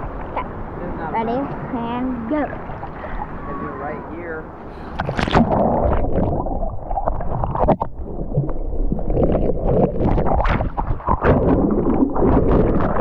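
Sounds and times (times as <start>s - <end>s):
sea water splashing and gurgling: 2.5s - 3.8s, 4.7s - 13.0s.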